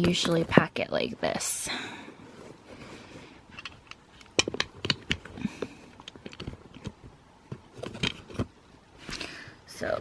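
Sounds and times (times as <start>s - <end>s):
rustling: 2.0s - 9.2s
small items clicking and knocking: 3.5s - 8.6s.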